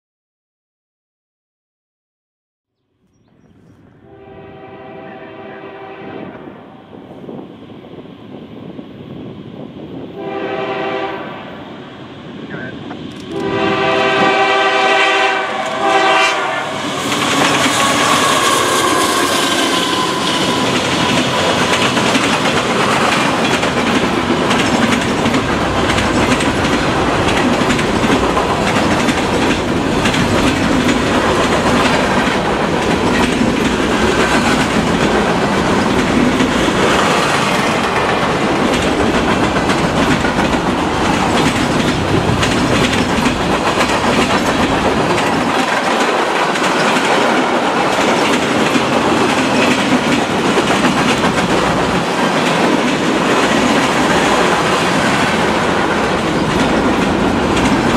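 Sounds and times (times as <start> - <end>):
diesel locomotives passing: 3.3 - 57.9
locomotive horn: 4.0 - 6.6, 10.2 - 11.5, 13.3 - 21.4
clickety-clack of train wheels: 12.9 - 57.9.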